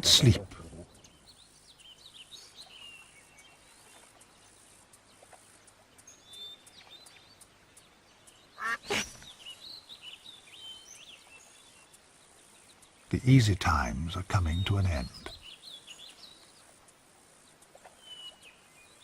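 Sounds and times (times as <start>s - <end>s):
small birds chirping: 0.0s - 19.0s
harsh animal call: 8.6s - 9.2s.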